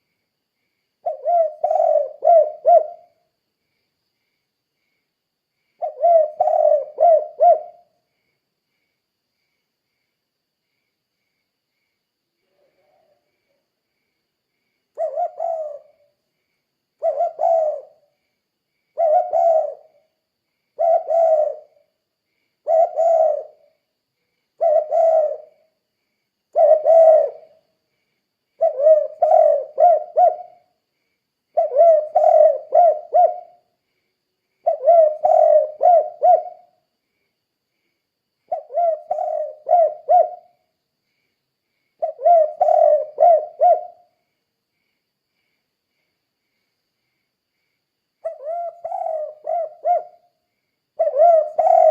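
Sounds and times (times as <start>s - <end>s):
dove cooing: 1.0s - 3.3s, 5.8s - 8.0s, 14.9s - 16.1s, 17.0s - 18.1s, 18.9s - 20.1s, 20.8s - 21.9s, 22.6s - 23.8s, 24.6s - 25.8s, 26.5s - 27.6s, 28.6s - 30.8s, 31.6s - 33.7s, 34.6s - 36.8s, 38.5s - 40.6s, 42.0s - 44.2s, 48.2s - 50.3s, 51.0s - 51.9s.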